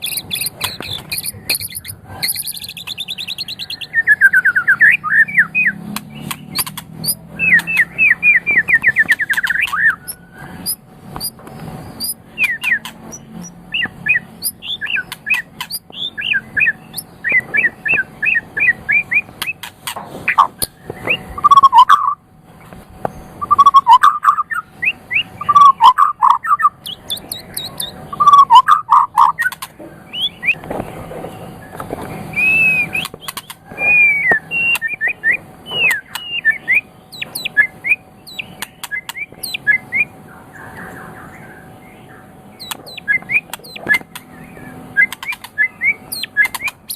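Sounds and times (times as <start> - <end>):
sharp clicks: 0.0 - 3.6, 5.9 - 7.9, 8.7 - 21.9, 26.8 - 28.0, 29.4 - 29.8, 32.9 - 35.0, 38.3 - 39.6, 42.6 - 44.3, 45.0 - 46.9
bird singing varied song: 0.0 - 46.9.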